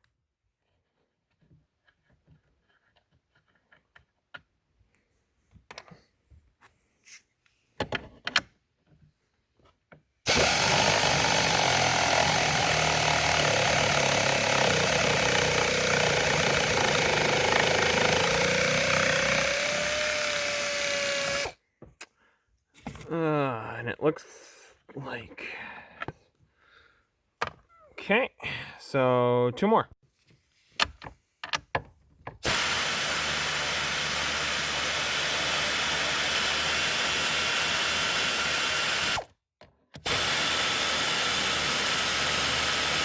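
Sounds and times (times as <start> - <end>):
faint clicks and handling knocks: 0.6 - 6.8
power tool running: 10.3 - 21.6, 32.4 - 39.3, 40.0 - 43.0.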